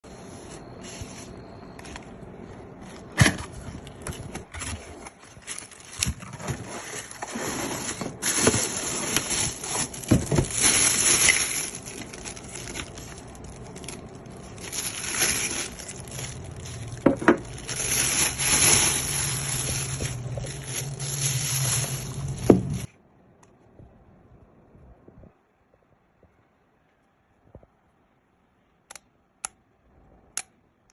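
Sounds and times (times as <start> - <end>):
packaging rustling and scraping: 0.1 - 22.9.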